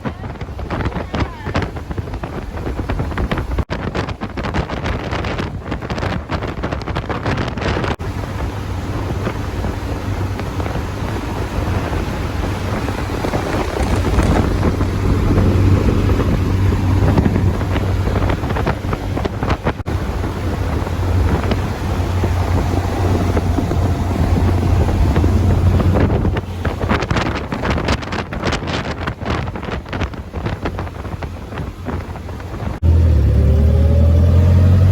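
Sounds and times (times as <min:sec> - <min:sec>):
wind buffeting microphone: 0:00.0 - 0:34.9
sports car engine drone: 0:08.0 - 0:27.9, 0:31.8 - 0:34.9.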